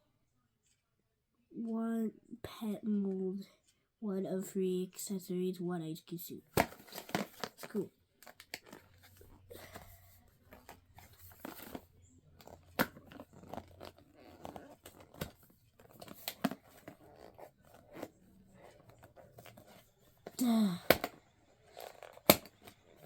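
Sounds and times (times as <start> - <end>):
packaging rustling and tearing: 6.6 - 9.8, 10.6 - 19.8.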